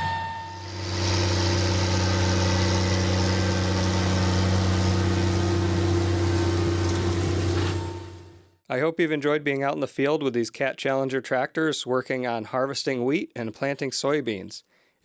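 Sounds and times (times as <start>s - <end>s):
diesel engine running with deep hum: 0.6s - 8.2s.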